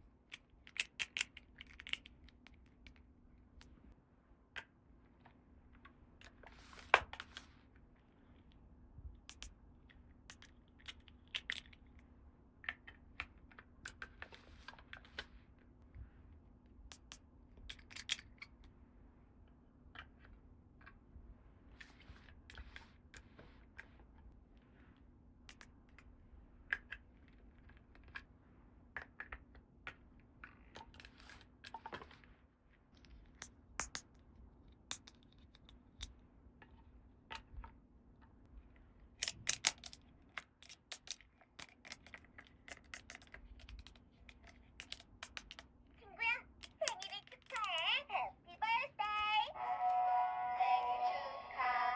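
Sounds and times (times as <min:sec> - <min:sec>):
plastic toy pieces clicking: 0:00.3 - 0:03.0, 0:10.2 - 0:12.0, 0:16.9 - 0:18.6, 0:39.2 - 0:45.7, 0:46.5 - 0:47.9.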